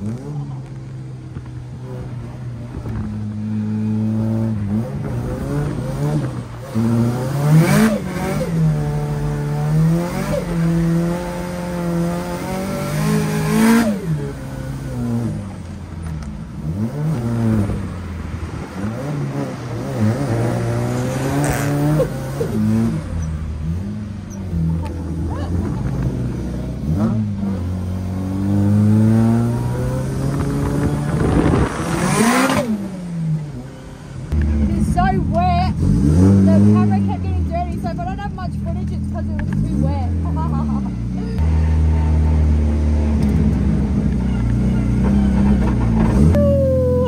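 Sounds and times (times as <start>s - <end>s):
car engine revving hard: 3.5s - 15.5s, 18.7s - 33.6s, 35.7s - 37.1s.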